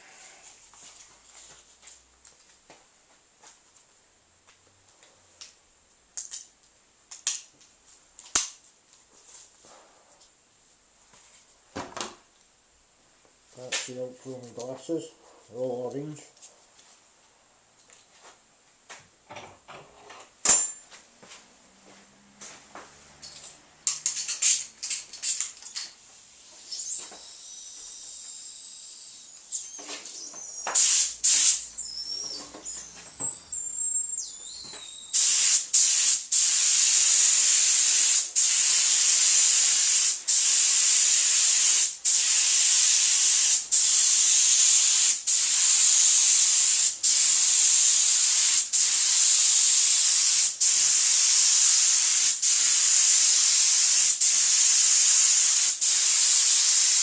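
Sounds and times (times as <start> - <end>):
high whistling tone: 26.6 - 35.2
paint spray gun hissing: 26.7 - 33.4, 34.6 - 57.0.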